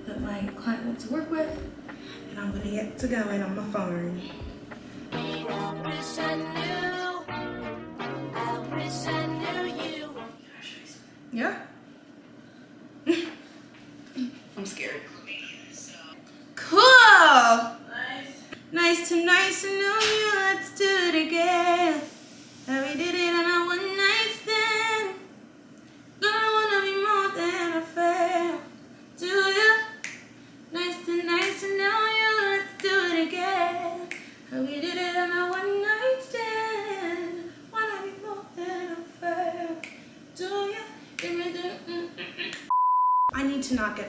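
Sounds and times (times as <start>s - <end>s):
woman singing: 0.0s - 7.3s, 8.3s - 10.4s, 18.7s - 22.1s, 22.7s - 25.3s, 26.2s - 30.0s, 30.7s - 42.3s.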